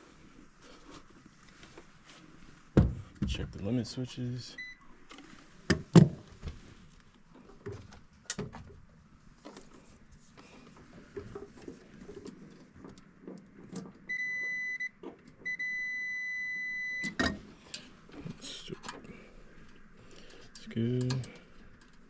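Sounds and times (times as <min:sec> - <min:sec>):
multimeter continuity beep: 0:04.6 - 0:04.8, 0:14.1 - 0:14.9, 0:15.5 - 0:17.2.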